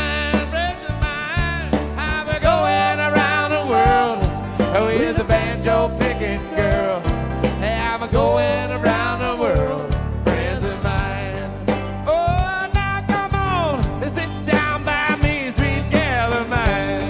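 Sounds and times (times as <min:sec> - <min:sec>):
bass: 0:00.0 - 0:17.0
guitar: 0:00.0 - 0:17.0
person singing: 0:00.0 - 0:17.0
steady drum beat: 0:00.0 - 0:17.0.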